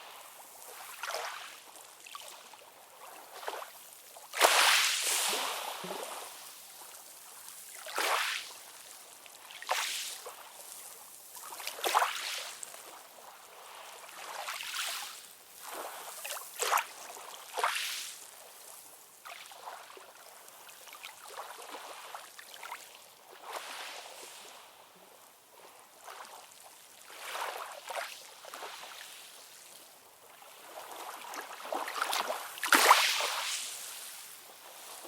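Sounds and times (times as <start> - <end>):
steady hiss of water: 0.0 - 19.6
small waves lapping and splashing: 0.0 - 35.0.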